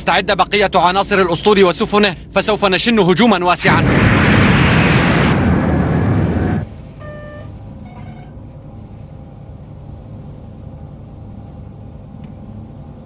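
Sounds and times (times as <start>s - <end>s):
loud rushing noise: 3.7s - 6.9s
low engine hum: 3.8s - 13.0s.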